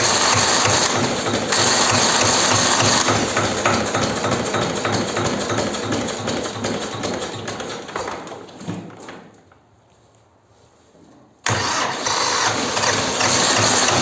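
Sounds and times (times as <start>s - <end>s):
tractor engine running: 0.0s - 7.9s, 11.5s - 14.0s.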